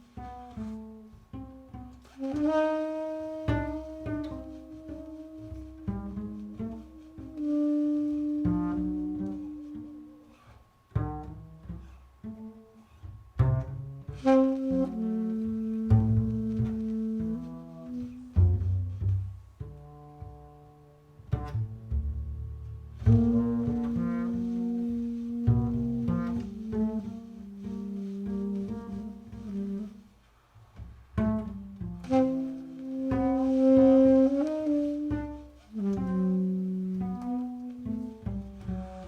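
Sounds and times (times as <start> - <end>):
tenor saxophone: 0.0 - 21.9, 22.9 - 39.0
plucked upright bass: 0.0 - 39.0.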